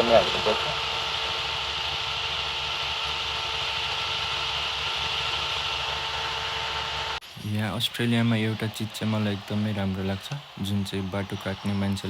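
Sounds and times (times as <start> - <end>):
motorcycle engine running: 0.0 - 7.2
faint even whine: 0.0 - 12.0
steady hiss: 7.2 - 12.0.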